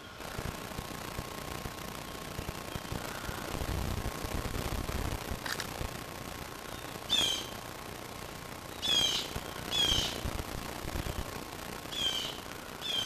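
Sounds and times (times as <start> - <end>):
bird calling: 6.7 - 7.6, 8.7 - 10.2, 11.9 - 13.0.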